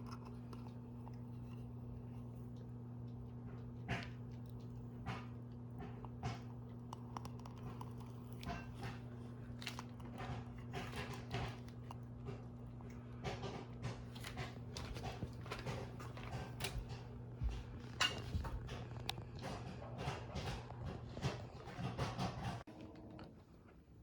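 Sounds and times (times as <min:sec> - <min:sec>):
crunching and crackling: 0:00.0 - 0:23.5
low electrical hum: 0:00.0 - 0:24.0.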